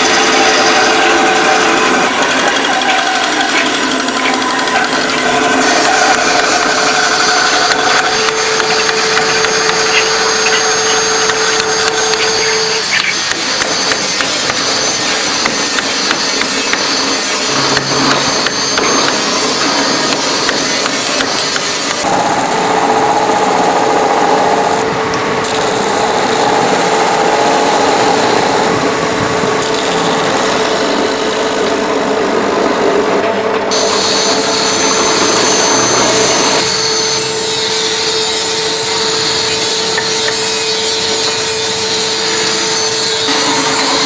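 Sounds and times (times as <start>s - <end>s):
rasping wood: 0.0s - 22.2s
power tool grinding wood: 0.0s - 24.8s, 33.7s - 44.0s
sawing wood: 0.0s - 24.9s, 33.7s - 44.0s
steady hum: 0.0s - 44.0s.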